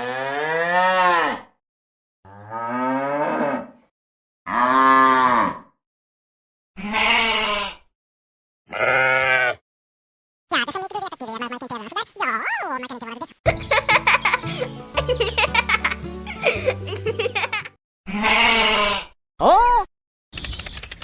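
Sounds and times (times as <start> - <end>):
cow mooing: 0.0 - 1.5, 2.3 - 3.8, 4.5 - 5.7, 8.7 - 9.6.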